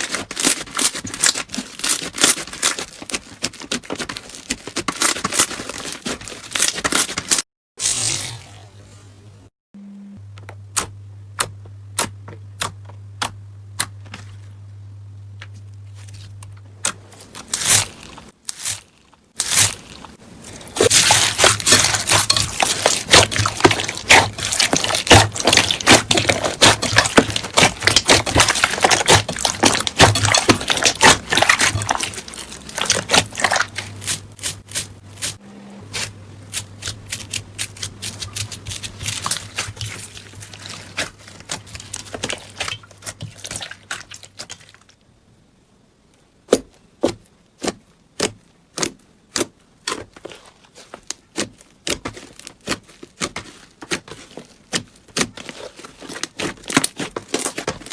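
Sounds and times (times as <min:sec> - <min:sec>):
steady low hum: 0:08.4 - 0:18.4.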